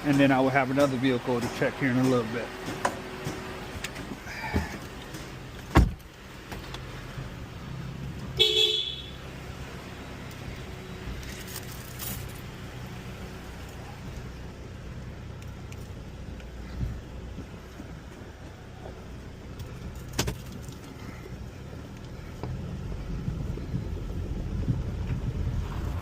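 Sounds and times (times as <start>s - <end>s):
car engine idling: 0.0s - 26.0s
car door shutting: 3.8s - 6.8s
car horn toot: 8.4s - 9.3s.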